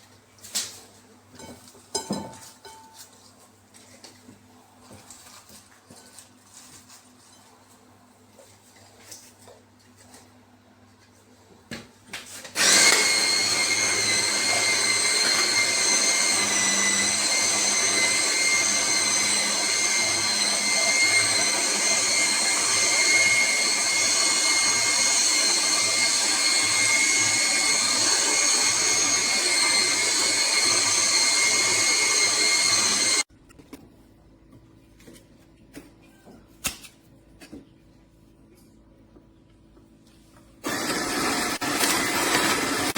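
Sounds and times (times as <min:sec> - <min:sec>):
juicer motor whining: 0:12.6 - 0:33.3, 0:40.6 - 0:42.9.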